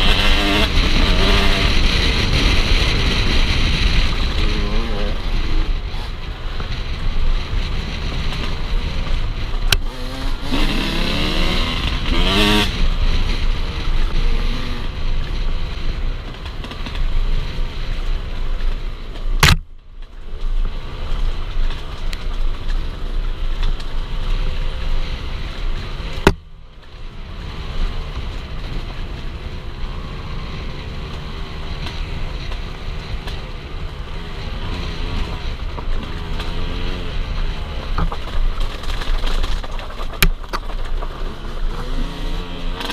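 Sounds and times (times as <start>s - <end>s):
motorcycle engine revving: 0.0s - 19.6s, 22.7s - 40.2s, 40.8s - 42.9s.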